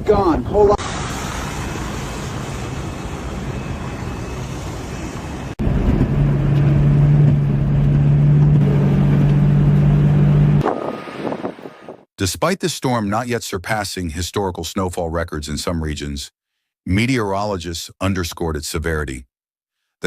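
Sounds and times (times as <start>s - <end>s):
low-pitched engine hum: 0.8s - 11.0s
wind buffeting microphone: 10.6s - 12.0s.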